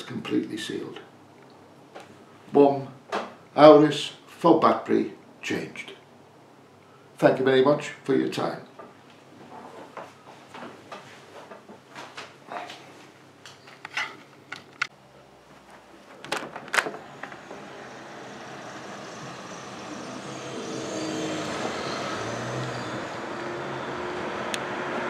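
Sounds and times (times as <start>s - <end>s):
sharp clicks and knocks: 16.1s - 17.6s
vehicle humming: 16.2s - 25.0s.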